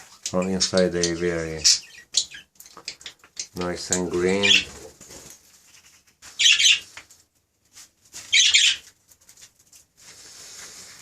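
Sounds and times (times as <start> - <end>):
budgerigars squawking: 0.3 - 4.7, 6.4 - 6.9, 8.3 - 8.8.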